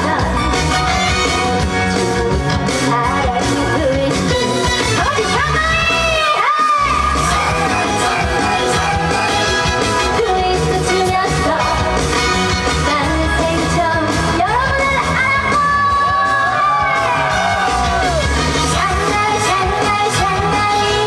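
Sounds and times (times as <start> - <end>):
woman singing: 0.0 - 0.5, 2.8 - 9.2, 10.0 - 12.0, 12.7 - 16.4, 18.7 - 21.0
amplified backing music with beat: 0.0 - 21.0.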